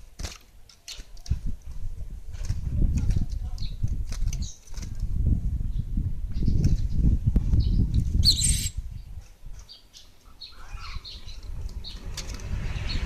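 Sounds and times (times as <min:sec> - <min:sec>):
bird chirping: 0:07.6 - 0:12.1
harsh bird call: 0:08.2 - 0:08.8.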